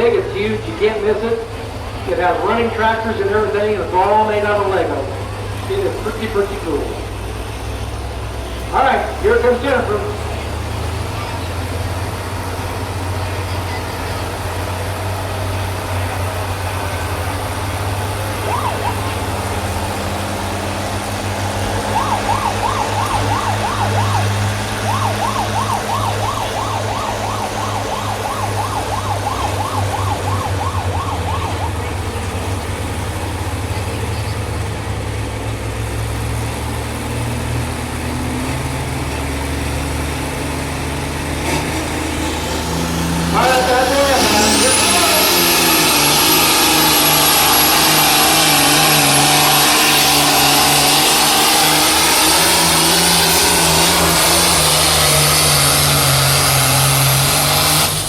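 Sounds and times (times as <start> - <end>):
tractor engine under load: 0.0 - 58.0
rapid warbling high tone: 18.4 - 19.5, 21.8 - 31.8.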